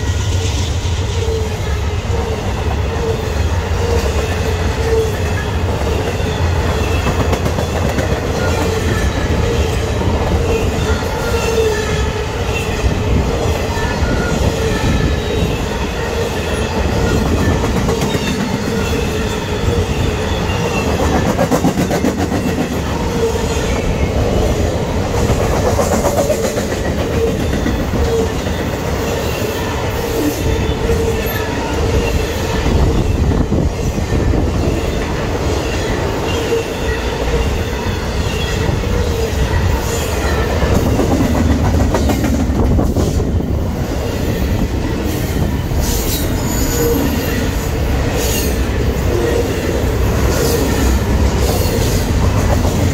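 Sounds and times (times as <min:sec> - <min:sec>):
train wheels rumbling on rail: 0:00.0 - 0:52.9
wheel squeal: 0:45.8 - 0:47.6.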